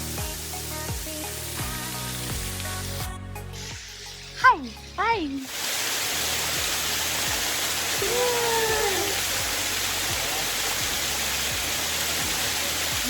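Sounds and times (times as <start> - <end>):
waterfall rushing: 5.4 - 13.0.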